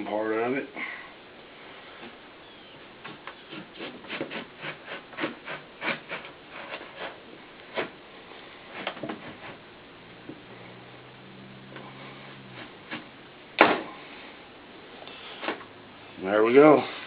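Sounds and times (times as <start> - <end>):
twine sawing through adhesive: 3.0 - 8.0, 8.7 - 9.7, 11.6 - 13.2.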